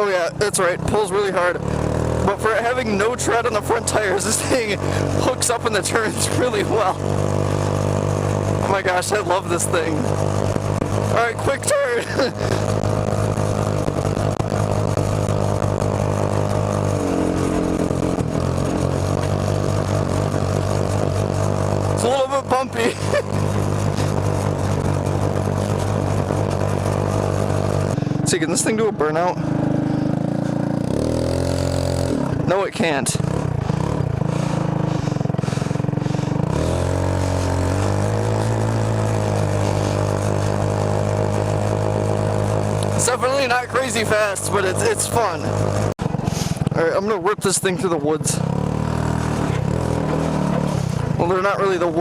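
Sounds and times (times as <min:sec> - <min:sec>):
go-kart engine running: 0:00.0 - 0:52.0.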